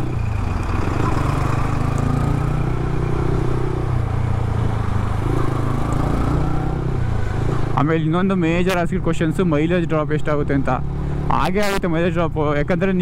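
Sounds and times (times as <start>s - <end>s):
motorcycle engine at low revs: 0.0s - 8.6s.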